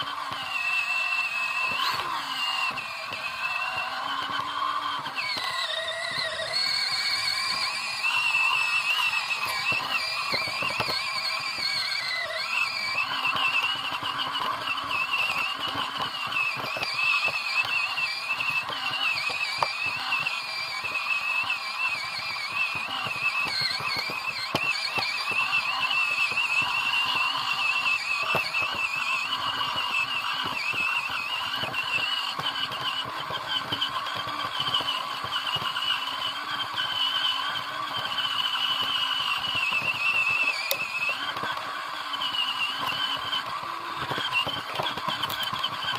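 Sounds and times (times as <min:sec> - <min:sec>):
crackling rattle of tyres: 0:00.0 - 0:45.9
rc car motor whining: 0:00.0 - 0:45.9.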